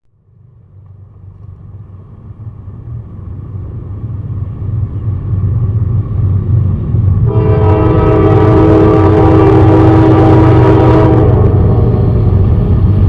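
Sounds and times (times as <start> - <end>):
diesel train rumbling: 0.0 - 13.0
locomotive horn: 7.2 - 12.4.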